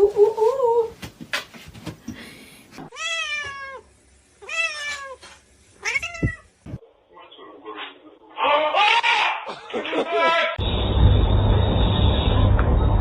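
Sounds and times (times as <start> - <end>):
cat meowing: 2.8 - 6.5.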